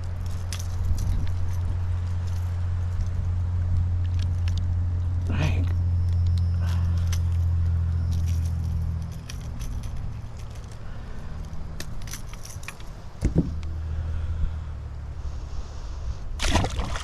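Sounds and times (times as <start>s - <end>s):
boat motor humming: 0.0s - 17.0s
light metallic jangling: 0.1s - 3.3s, 5.6s - 13.7s
thump: 13.2s - 13.6s.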